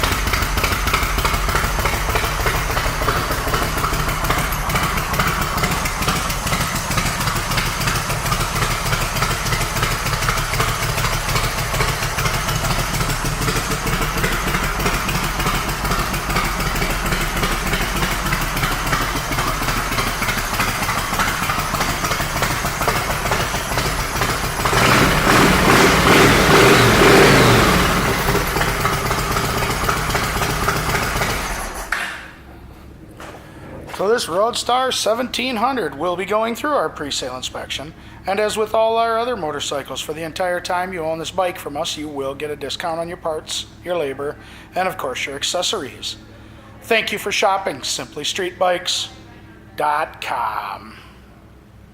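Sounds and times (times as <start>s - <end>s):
motorcycle engine idling and revving: 0.0s - 32.2s.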